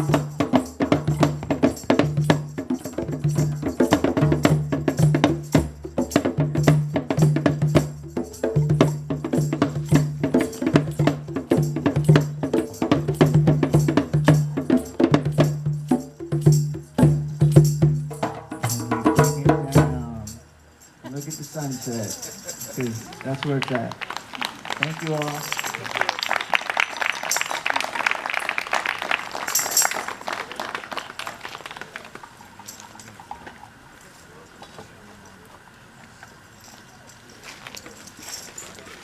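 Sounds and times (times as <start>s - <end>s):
hand percussion strikes: 0.0s - 23.4s, 24.8s - 25.9s.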